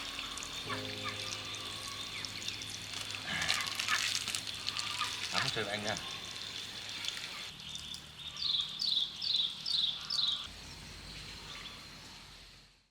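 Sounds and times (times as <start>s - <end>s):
bird calling high falling notes: 0.0s - 6.3s
countryside background noise: 0.0s - 12.9s.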